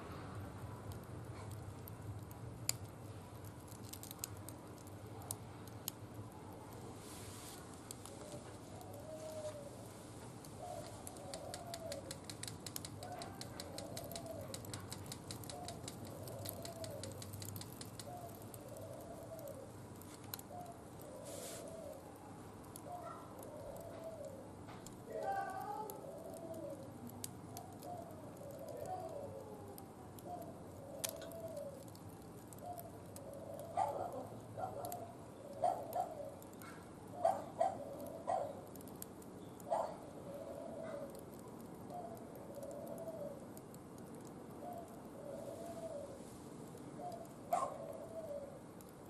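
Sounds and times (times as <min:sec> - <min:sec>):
wood fire crackling: 0:00.0 - 0:49.0
dove cooing: 0:08.1 - 0:09.8, 0:10.5 - 0:19.7, 0:20.4 - 0:22.2, 0:22.8 - 0:24.5, 0:25.1 - 0:38.7, 0:39.7 - 0:41.2, 0:41.9 - 0:43.5, 0:44.6 - 0:46.2, 0:46.9 - 0:48.7.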